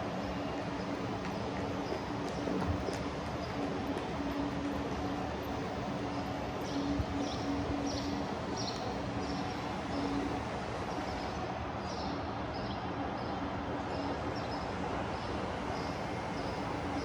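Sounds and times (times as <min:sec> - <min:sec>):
distant traffic: 0:00.0 - 0:11.5
building machinery hum: 0:00.0 - 0:17.0.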